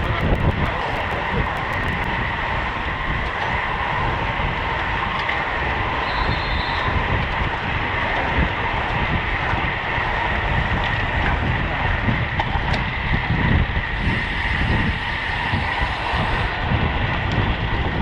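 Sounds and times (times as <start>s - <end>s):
steady whine: 0.0s - 10.4s
bicycle road noise: 0.0s - 18.0s
wind rush: 0.0s - 18.0s.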